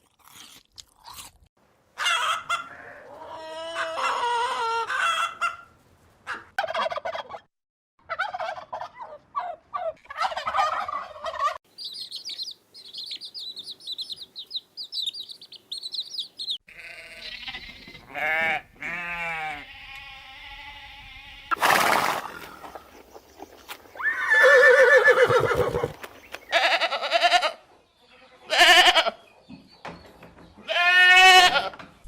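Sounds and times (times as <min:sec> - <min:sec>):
poultry calls: 0:08.1 - 0:29.2
livestock bleating: 0:16.7 - 0:21.5, 0:26.5 - 0:29.2, 0:30.6 - 0:31.8.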